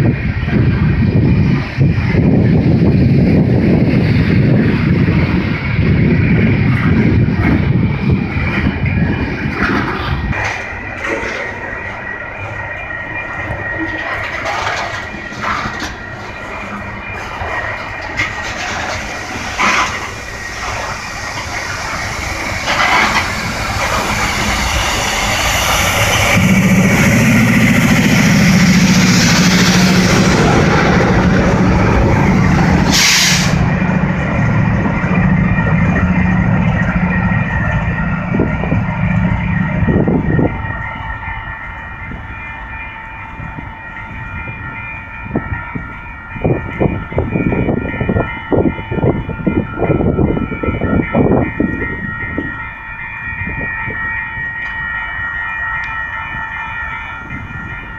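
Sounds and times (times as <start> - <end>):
locomotive engine drone: 0.0 - 57.9
train wheel and rail noise: 0.0 - 57.9
steady chord of tones: 20.1 - 33.0.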